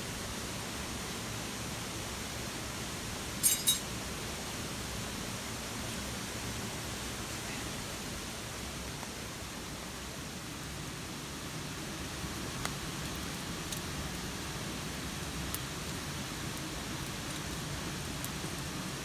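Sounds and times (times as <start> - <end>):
rain hiss: 0.0 - 19.0
bright clinks: 3.4 - 3.9.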